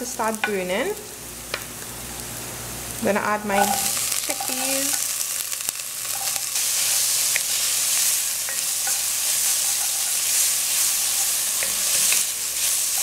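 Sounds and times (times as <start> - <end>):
chickpeas sizzling in oil: 0.0 - 13.0.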